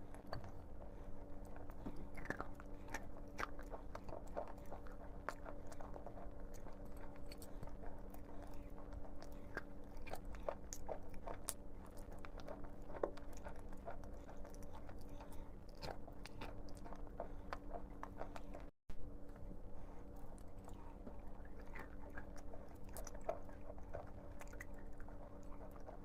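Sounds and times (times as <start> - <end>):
chewing chalk crunches: 0.0 - 26.0
faint steady hum: 0.0 - 26.0.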